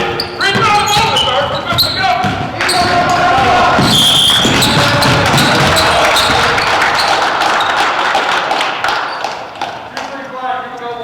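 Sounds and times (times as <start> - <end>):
basketball bouncing on court: 0.0 - 7.8
gym crowd din: 0.0 - 11.0.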